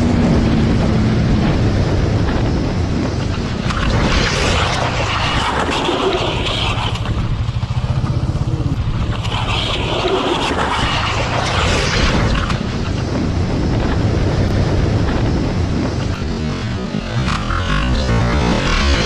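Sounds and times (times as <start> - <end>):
wind noise on microphone: 0.0 - 19.0
motorcycle engine running: 6.1 - 10.0.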